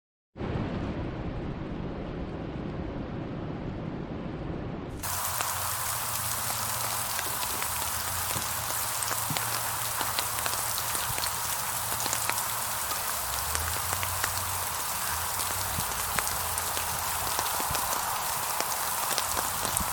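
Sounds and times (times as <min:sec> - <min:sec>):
steady rain hissing: 0:05.0 - 0:19.9.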